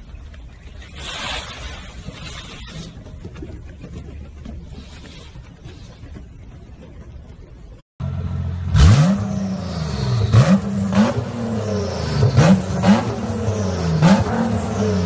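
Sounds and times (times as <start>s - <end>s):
car engine revving: 8.0s - 15.0s.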